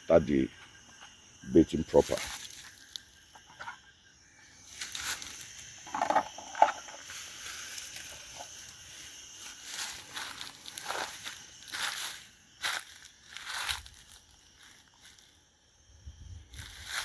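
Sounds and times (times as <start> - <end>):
insects chirring: 0.0 - 17.0
rustling of things handled: 4.8 - 15.4.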